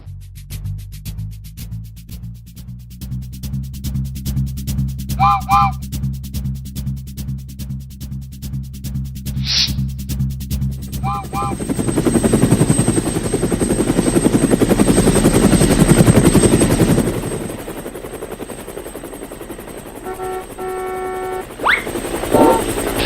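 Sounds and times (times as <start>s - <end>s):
cartoon motor chopping: 5.2s - 5.8s, 21.6s - 23.0s
short horn tone: 5.2s - 5.8s, 11.0s - 11.6s, 20.0s - 21.5s.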